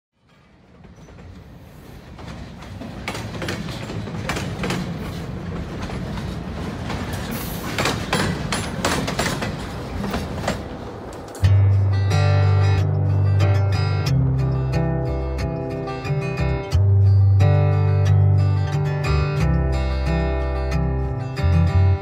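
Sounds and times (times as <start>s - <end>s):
freight train rumbling past: 0.2s - 16.7s.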